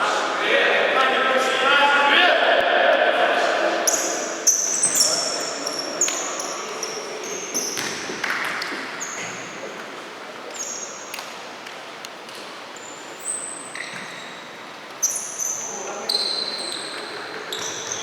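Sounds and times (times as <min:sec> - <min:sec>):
shoes squeaking on court floor: 0:03.7 - 0:11.2, 0:12.7 - 0:18.0.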